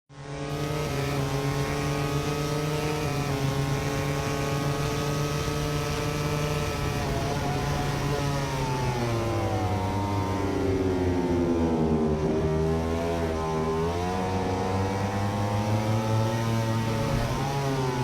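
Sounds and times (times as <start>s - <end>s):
racing motorcycle engine revving high: 0.1s - 18.0s.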